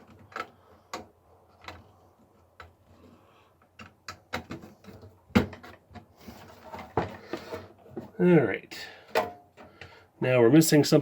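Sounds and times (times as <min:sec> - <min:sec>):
computer parts clicking and knocking: 0:00.0 - 0:08.2.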